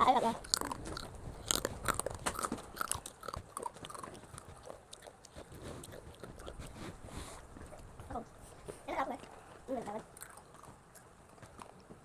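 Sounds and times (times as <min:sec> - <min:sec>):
crunching crispy chips: 0:00.4 - 0:06.5.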